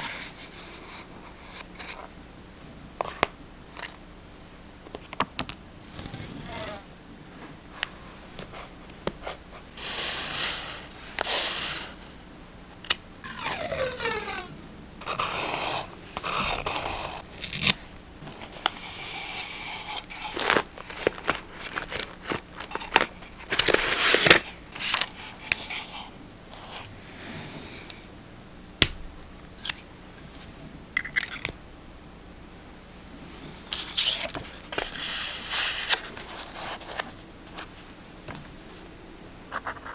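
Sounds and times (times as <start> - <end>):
paper rustling and scraping: 13.3 - 27.4, 33.3 - 38.3
scissors snipping paper: 15.0 - 17.8.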